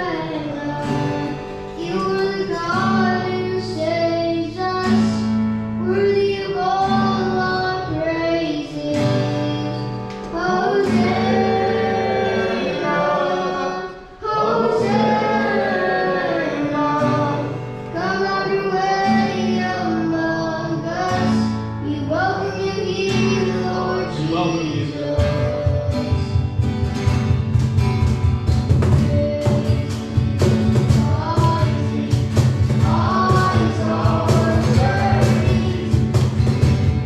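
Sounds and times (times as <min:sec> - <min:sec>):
voices singing praise song: 0:00.0 - 0:04.1, 0:10.2 - 0:21.5, 0:29.2 - 0:36.8
drum and bass beat: 0:25.5 - 0:37.0.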